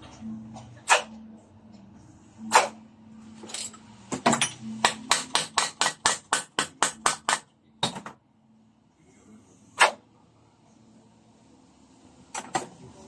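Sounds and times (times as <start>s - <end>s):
hammer tapping on metal: 4.2s - 8.1s.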